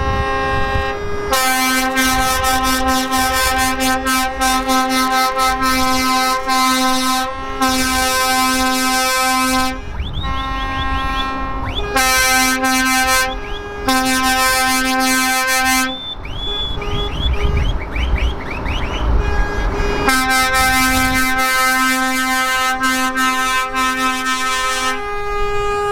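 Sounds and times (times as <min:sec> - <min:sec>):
low rumble of engines: 0:00.0 - 0:25.9
truck air horns blasting: 0:00.0 - 0:25.9
rising whistle-like chirps: 0:10.0 - 0:12.0, 0:13.3 - 0:13.7, 0:15.9 - 0:19.2.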